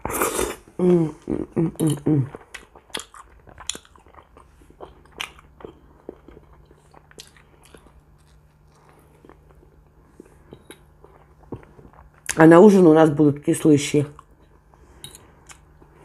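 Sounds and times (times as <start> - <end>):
faint low hum: 0.0 - 16.0
chewing and biting food: 1.8 - 12.4.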